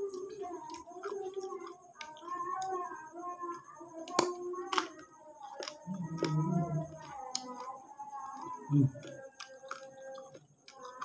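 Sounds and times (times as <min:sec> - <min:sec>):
crunching raw vegetables: 0:03.6 - 0:11.0.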